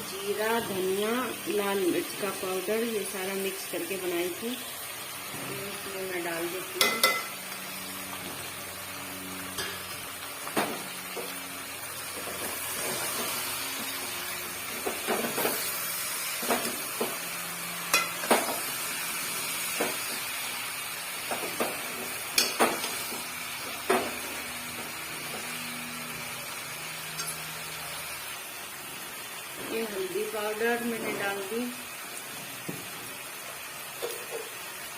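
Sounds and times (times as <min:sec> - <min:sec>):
chicken sizzling in hot oil: 0:00.0 - 0:34.9
spoon knocking against pan: 0:06.8 - 0:07.3.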